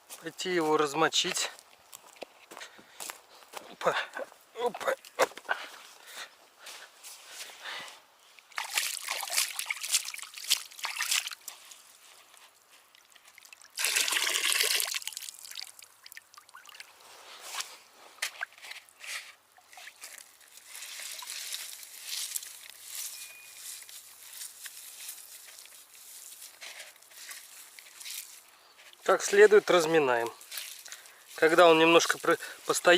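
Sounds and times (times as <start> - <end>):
water trickling and sloshing: 8.2 - 29.8, 30.4 - 32.9
rush of water: 8.5 - 11.5, 13.3 - 17.0.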